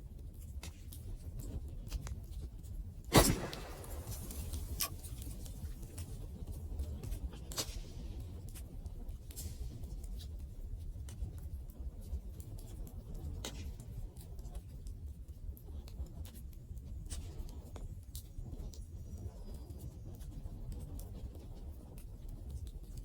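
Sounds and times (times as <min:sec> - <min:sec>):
wood fire crackling and popping: 0:03.1 - 0:05.9
low rumble of flames: 0:03.1 - 0:08.1.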